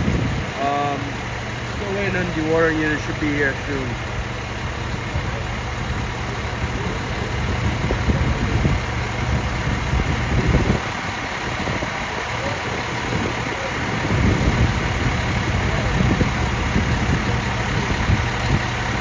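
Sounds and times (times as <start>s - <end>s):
heavy truck engines idling: 0.0s - 19.0s
street noise: 0.0s - 19.0s.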